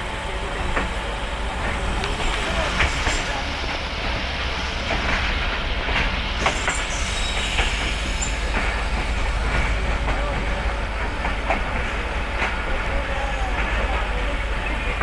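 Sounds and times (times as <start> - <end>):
standing train rumble and hum: 0.0 - 15.0.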